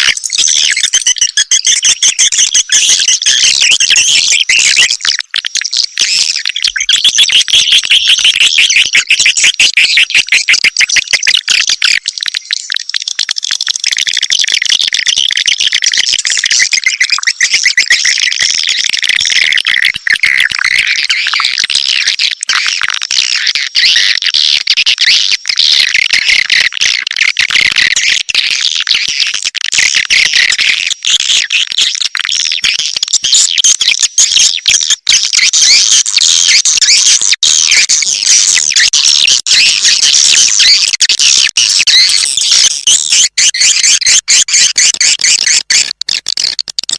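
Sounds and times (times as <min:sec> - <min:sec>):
high-pitched twittering chirps: 0:00.0 - 0:12.8, 0:16.1 - 0:22.8, 0:32.4 - 0:46.3.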